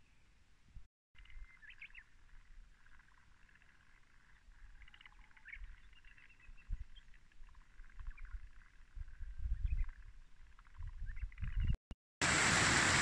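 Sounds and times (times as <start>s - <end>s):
small birds chirping and trilling: 1.2s - 11.8s.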